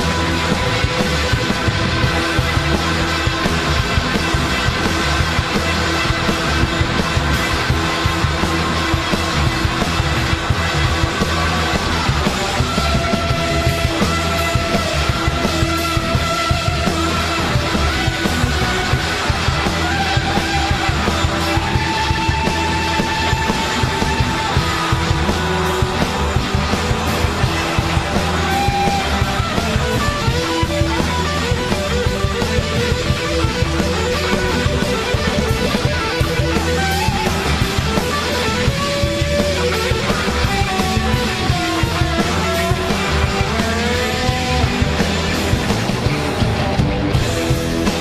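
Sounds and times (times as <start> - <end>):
electric guitar solo: 0.0 - 48.0
live blues-rock band playing: 0.0 - 48.0.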